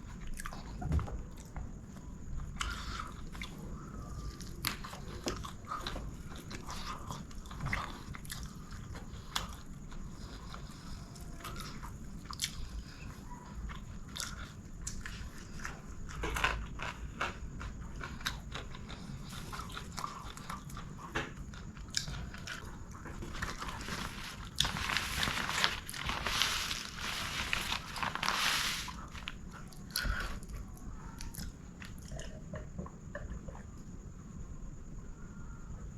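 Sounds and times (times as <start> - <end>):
chewing and mouth sounds: 0.1 - 33.9
small clicks and crunches: 20.3 - 30.4
loud noisy rustling: 23.4 - 29.4.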